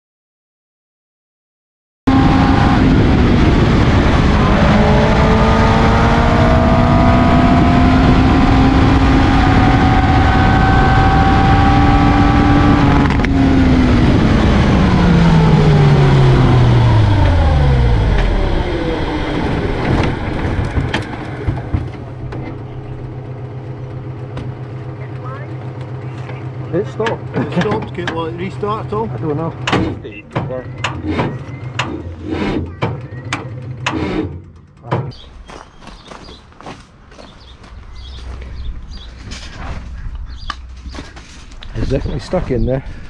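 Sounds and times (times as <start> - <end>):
race engine running hard: 2.1 - 35.0
rattles and knocks of rolling car: 18.0 - 35.3.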